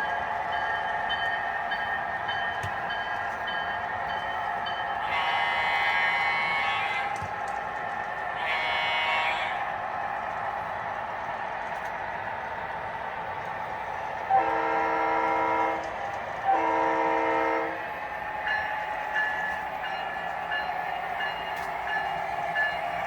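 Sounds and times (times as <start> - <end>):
locomotive bell ringing: 0.0 - 6.3, 18.4 - 23.0
model trains running on track: 0.0 - 23.0
model locomotive horn blasts: 5.0 - 6.9, 8.4 - 9.6, 14.3 - 15.8, 16.4 - 17.8.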